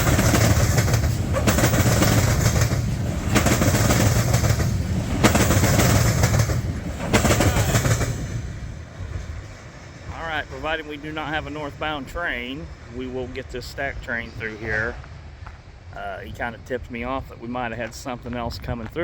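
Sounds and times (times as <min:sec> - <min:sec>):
train wheels clattering: 0:00.0 - 0:13.5.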